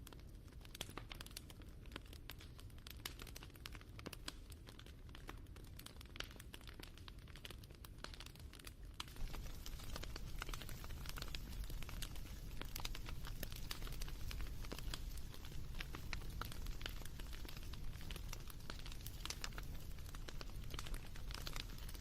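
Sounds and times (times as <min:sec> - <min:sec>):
wood fire crackling: 0:00.0 - 0:22.0
fire hissing: 0:09.1 - 0:22.0.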